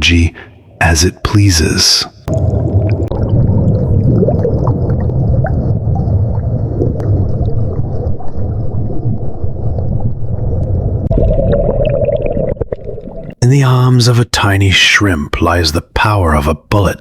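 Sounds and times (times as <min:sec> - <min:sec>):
low underwater rumble: 0:02.3 - 0:13.4.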